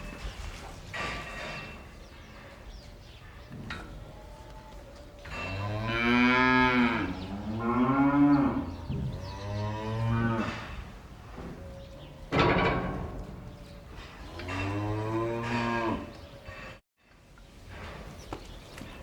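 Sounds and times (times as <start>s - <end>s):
cow mooing: 5.4s - 10.8s, 14.2s - 16.2s.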